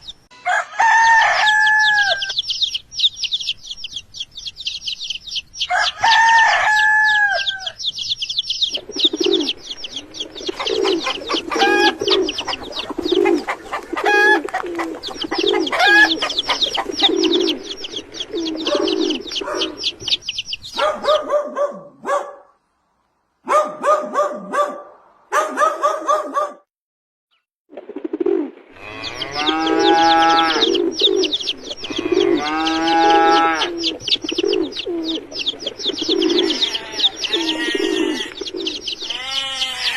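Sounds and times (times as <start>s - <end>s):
small birds chirping: 0.0s - 0.3s, 1.4s - 24.2s, 28.8s - 39.9s
rooster crowing: 0.4s - 2.4s, 5.7s - 7.9s, 11.5s - 12.1s, 15.5s - 16.3s, 28.8s - 30.8s, 31.9s - 33.9s, 36.4s - 38.4s
chickens clucking: 1.4s - 21.8s, 27.8s - 39.9s.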